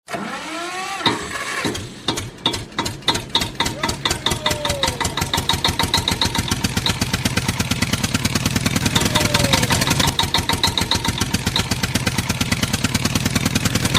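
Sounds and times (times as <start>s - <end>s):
engine starting and chugging: 0.0s - 13.9s
falling tone: 8.6s - 12.2s.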